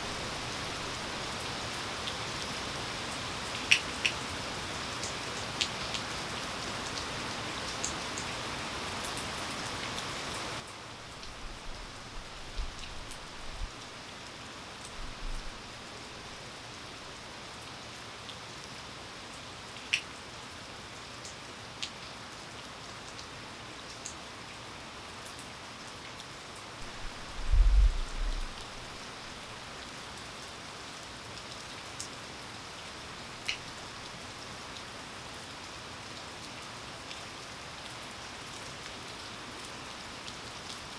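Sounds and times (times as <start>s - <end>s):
steady rain falling: 0.0s - 40.9s
raindrops ticking on surface: 0.1s - 16.6s, 19.3s - 20.2s, 21.2s - 30.5s, 32.8s - 40.9s
low rumble: 26.8s - 28.6s.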